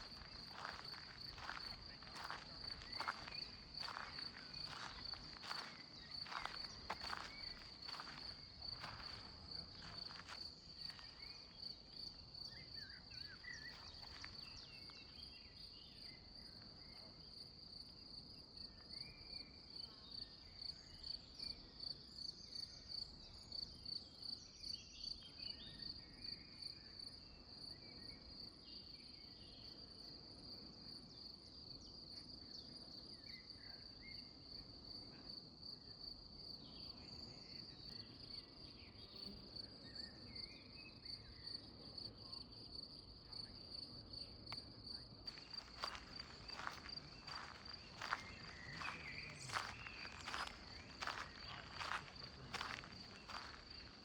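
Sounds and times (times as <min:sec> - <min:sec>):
cricket trilling: 0:00.0 - 0:14.7, 0:44.8 - 0:54.0.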